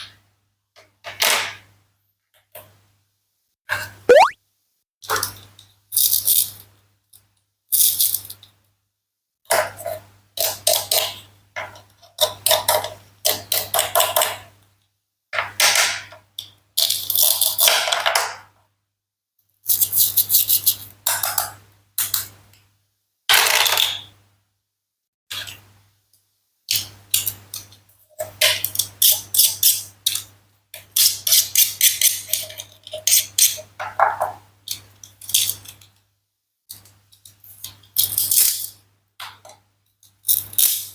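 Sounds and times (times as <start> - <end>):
clicking and clattering of toy food: 5.1 - 8.7, 9.5 - 18.5, 19.6 - 22.6, 23.3 - 24.1, 26.7 - 36.1, 36.7 - 40.9.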